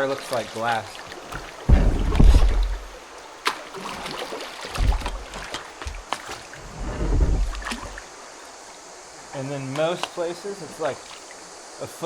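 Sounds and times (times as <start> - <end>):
paddle splashing and dripping: 0.0 - 8.2
sharp knocks: 1.7 - 2.9.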